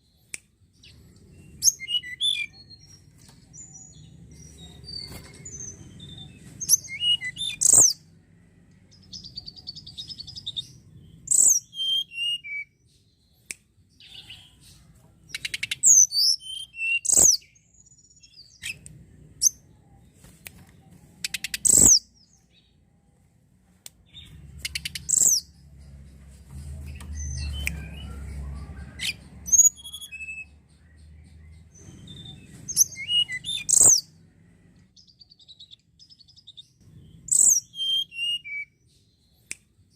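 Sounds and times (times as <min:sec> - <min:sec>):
bird chirping and trilling: 0:00.8 - 0:08.2, 0:08.9 - 0:13.4, 0:15.3 - 0:18.8, 0:21.2 - 0:22.8, 0:24.0 - 0:34.2, 0:35.0 - 0:39.4.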